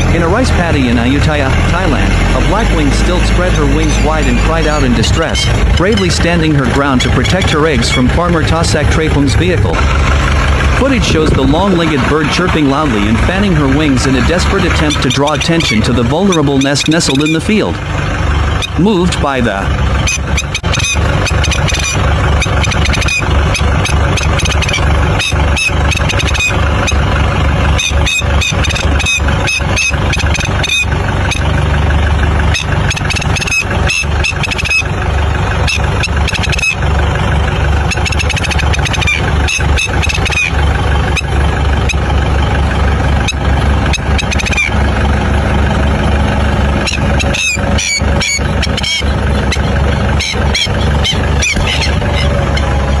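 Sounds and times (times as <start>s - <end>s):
tractor engine knocking: 0.0s - 53.0s
bird distress calls: 19.5s - 31.5s, 32.4s - 36.9s, 37.8s - 42.1s, 43.2s - 44.8s, 46.7s - 53.0s.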